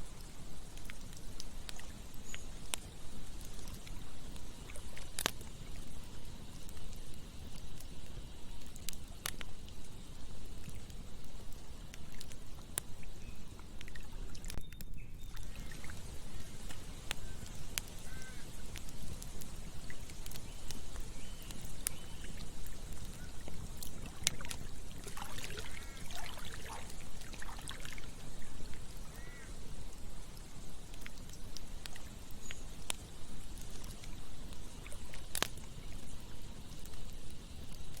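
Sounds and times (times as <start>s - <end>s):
burning wood crackling pops: 0.0s - 38.0s
campfire rushing: 0.0s - 38.0s.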